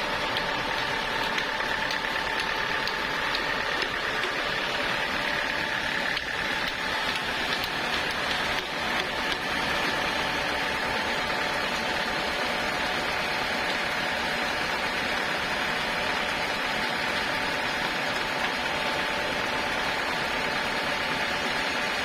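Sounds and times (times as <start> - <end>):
sawmill machinery running: 0.0 - 22.0.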